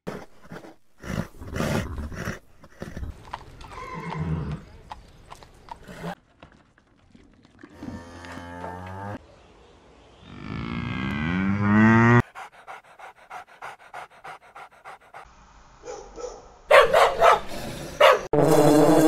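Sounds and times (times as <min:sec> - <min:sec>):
dog panting: 0:12.2 - 0:15.3
dog barking: 0:13.4 - 0:18.3.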